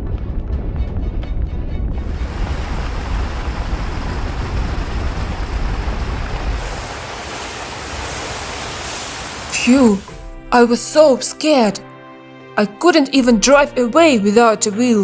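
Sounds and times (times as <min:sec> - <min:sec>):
deep steady rumble: 0:01.9 - 0:10.5
fire hose water spray hissing: 0:02.1 - 0:11.3.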